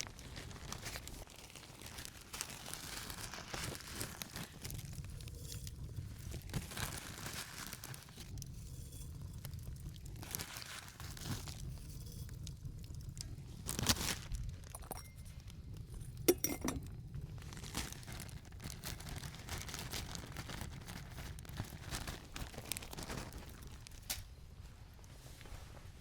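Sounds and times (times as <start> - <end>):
hard objects clinking: 14.7 - 15.4, 16.0 - 17.0.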